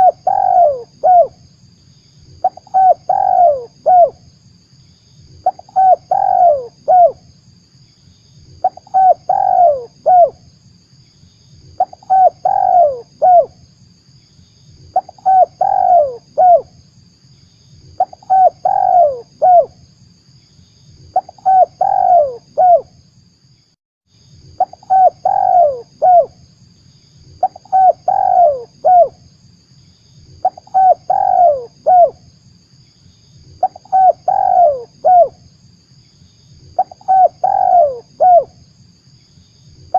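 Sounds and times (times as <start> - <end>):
dove cooing: 0.0 - 1.4, 2.4 - 4.2, 5.4 - 7.2, 8.6 - 10.4, 11.8 - 13.5, 14.9 - 16.7, 18.0 - 19.7, 21.1 - 22.9, 24.6 - 26.4, 27.4 - 29.2, 30.4 - 32.2, 33.6 - 35.4, 36.8 - 38.6
faint hiss and low hum: 0.0 - 39.9.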